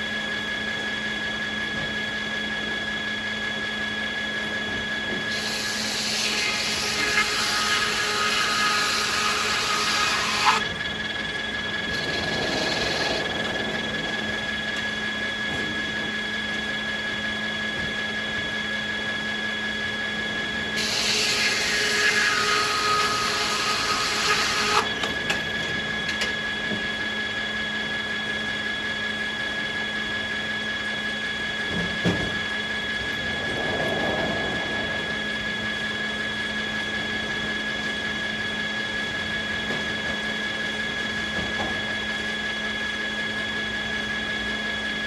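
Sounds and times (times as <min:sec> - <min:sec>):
sawmill machinery humming: 0:00.0 - 0:45.0
saw cutting wood: 0:05.2 - 0:10.7, 0:11.8 - 0:13.8, 0:20.8 - 0:25.0.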